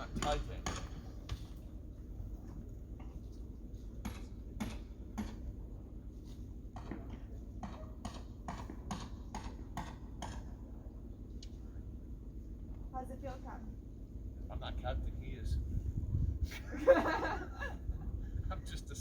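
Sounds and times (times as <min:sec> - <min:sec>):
sharp knocks and clacks: 0:00.0 - 0:01.5.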